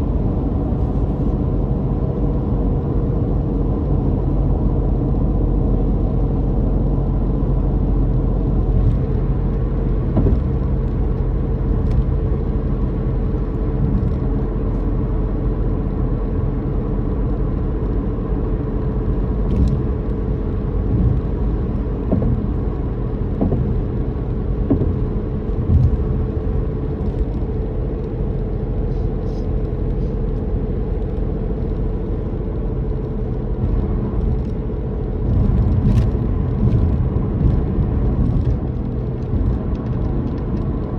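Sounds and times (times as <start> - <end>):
car engine droning: 0.0 - 40.9
tyre road rumble: 0.0 - 40.9
faint bumps and knocks: 10.1 - 10.8, 22.0 - 22.6, 23.3 - 24.0, 24.6 - 26.2.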